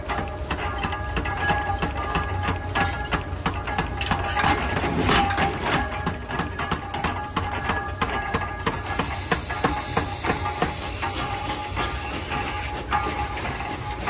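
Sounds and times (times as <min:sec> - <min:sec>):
steady machine hum: 0:00.0 - 0:14.0
hiss: 0:08.7 - 0:14.0.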